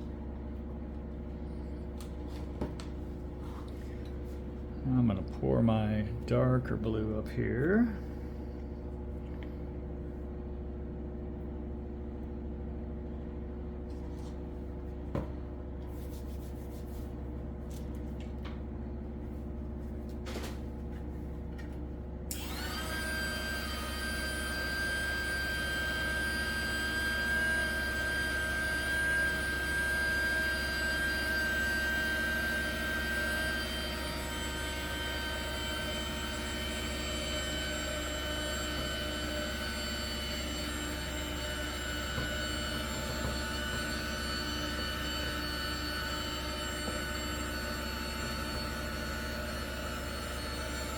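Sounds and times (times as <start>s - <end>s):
steady low hum: 0.0s - 22.7s
heat gun fan whirring: 0.0s - 50.9s.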